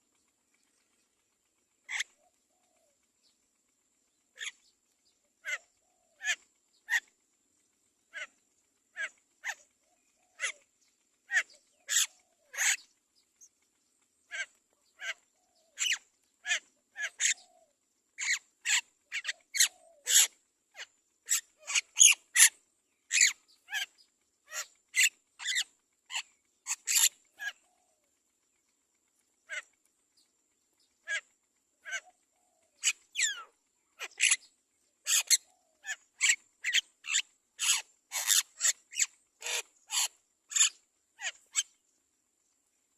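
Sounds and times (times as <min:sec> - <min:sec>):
mynas chirping: 0:30.8 - 0:41.8.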